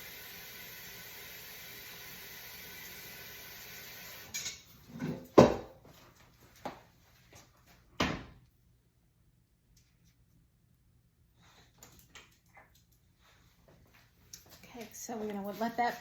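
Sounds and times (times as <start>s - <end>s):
kitchen items knocking: 4.4s - 5.8s.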